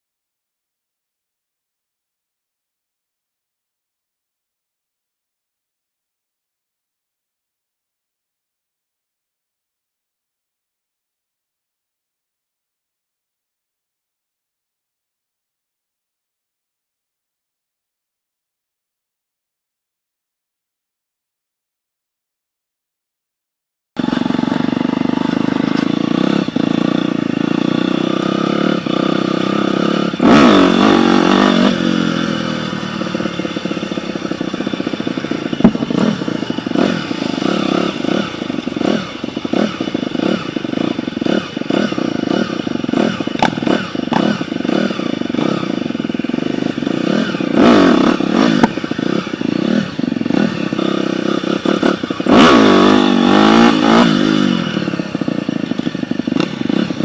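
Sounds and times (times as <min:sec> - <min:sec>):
dirt bike engine revving: 0:24.0 - 0:57.0.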